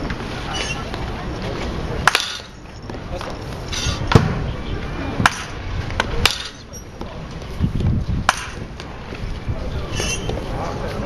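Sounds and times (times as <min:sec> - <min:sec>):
baseball bat striking ball: 0:02.0 - 0:02.6, 0:04.1 - 0:04.4, 0:05.2 - 0:06.6, 0:08.2 - 0:08.7.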